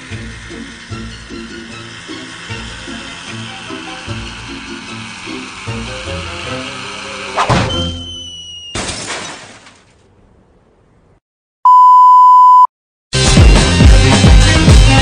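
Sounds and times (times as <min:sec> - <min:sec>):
ringing crash and smash: 0:08.7 - 0:09.9
loud steady beep: 0:11.6 - 0:12.7.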